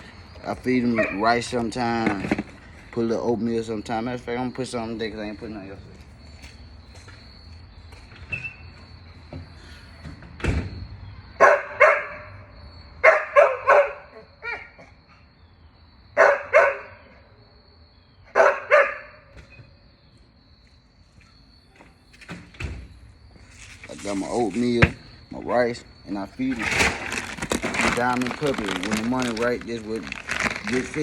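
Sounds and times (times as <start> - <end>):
dogs barking: 0.7 - 1.4, 11.4 - 12.4, 13.0 - 14.8, 16.2 - 17.2, 18.3 - 19.3
thump: 9.3 - 10.8.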